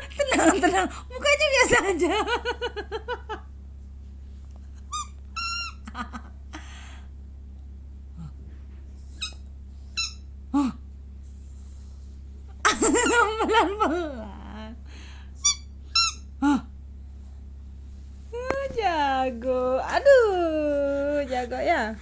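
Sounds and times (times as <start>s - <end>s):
squeaky toy ball squeaking: 4.9s - 5.8s, 9.2s - 9.4s, 10.0s - 10.2s, 15.4s - 16.3s.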